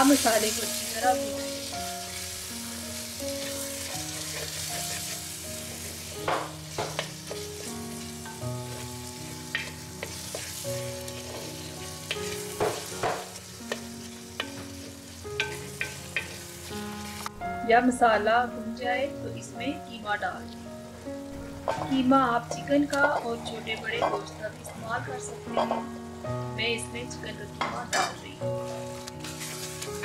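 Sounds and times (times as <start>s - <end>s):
food sizzling in hot oil: 0.0s - 30.0s
wooden spoon scraping a pot: 9.6s - 13.4s.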